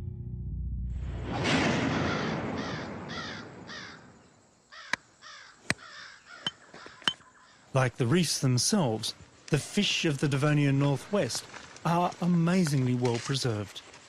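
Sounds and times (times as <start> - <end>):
outdoor ambience: 0.0 - 14.0
bird harsh repeated calls: 2.0 - 7.8.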